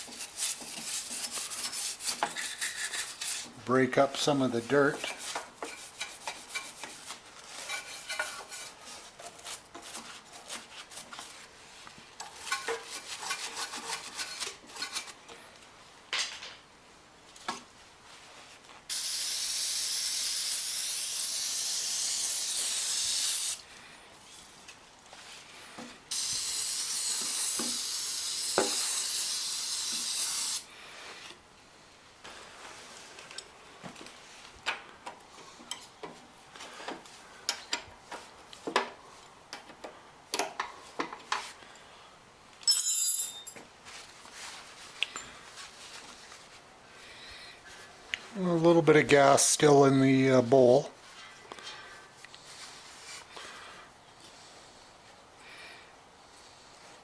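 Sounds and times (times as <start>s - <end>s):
aerosol can spraying: 18.9s - 23.6s, 26.1s - 30.7s.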